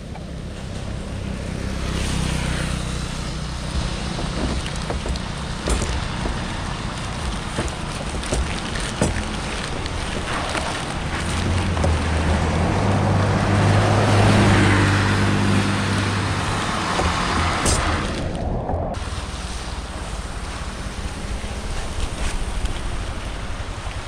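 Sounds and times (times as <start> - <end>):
vehicle engine hum: 0.0 - 24.0
floodwater rushing through culvert: 0.7 - 24.0
sharp knocks: 3.6 - 12.0, 16.0 - 19.0.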